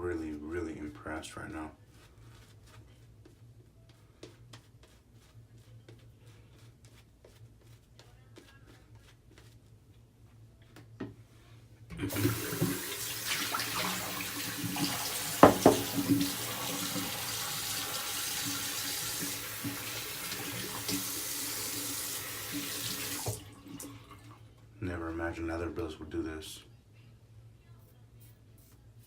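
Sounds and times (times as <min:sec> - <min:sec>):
tap water running into sink: 0:12.0 - 0:24.3
sharp knock against sink: 0:15.4 - 0:16.2.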